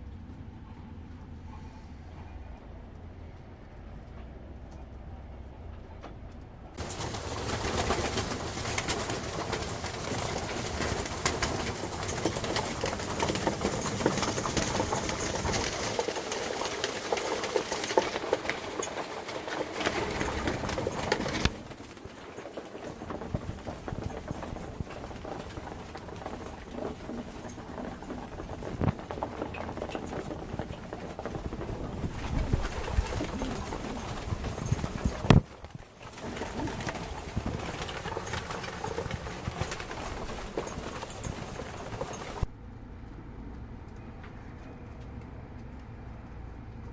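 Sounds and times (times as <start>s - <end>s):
pigeons cooing: 24.5s - 35.4s.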